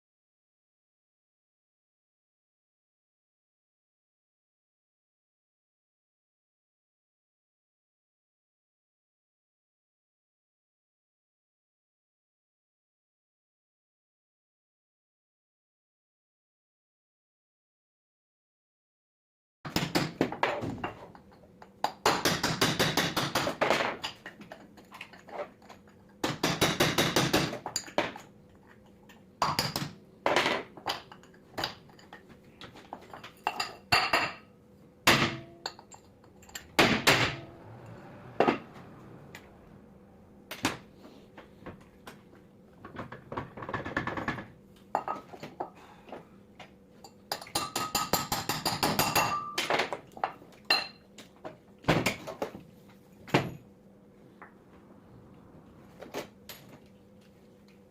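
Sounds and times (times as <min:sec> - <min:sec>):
metal tools clinking and tapping: 0:27.7 - 0:34.4, 0:35.4 - 0:36.8, 0:47.0 - 0:51.0.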